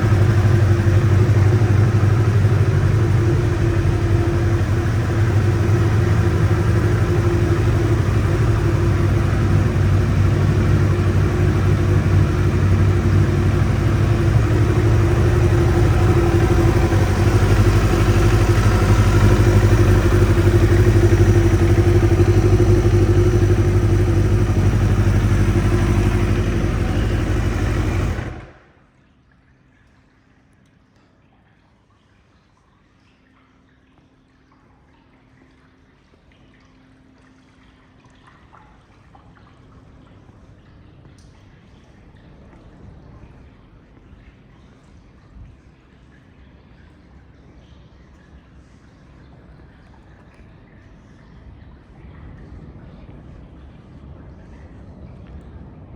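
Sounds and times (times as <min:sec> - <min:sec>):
motorcycle engine running: 0:00.0 - 0:28.7.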